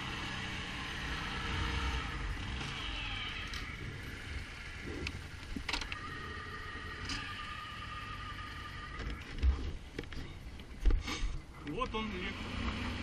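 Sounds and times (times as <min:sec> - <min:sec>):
atv engine running: 0:00.0 - 0:10.2, 0:11.7 - 0:13.0.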